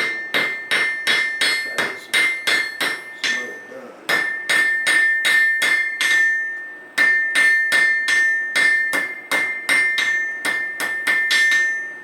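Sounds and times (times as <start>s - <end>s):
hammer striking metal on anvil: 0.0s - 12.0s.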